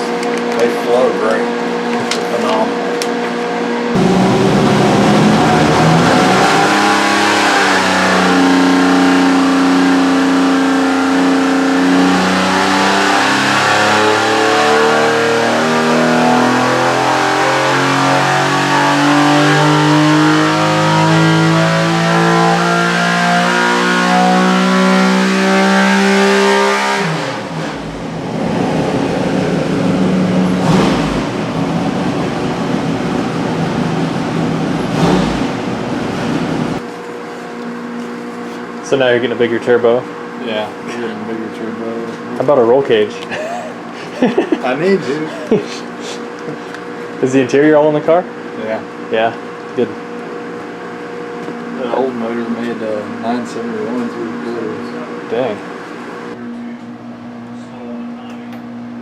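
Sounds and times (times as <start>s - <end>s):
race engine running under load: 0.0s - 36.9s.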